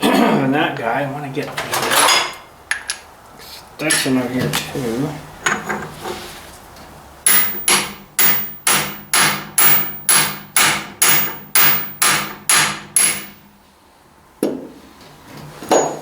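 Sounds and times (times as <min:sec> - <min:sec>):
hammer striking steel: 0:07.3 - 0:13.5.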